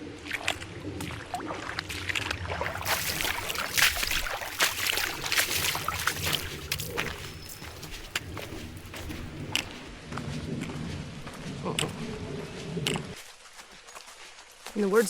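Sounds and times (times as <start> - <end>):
heavy rain pattering: 2.7 - 9.4.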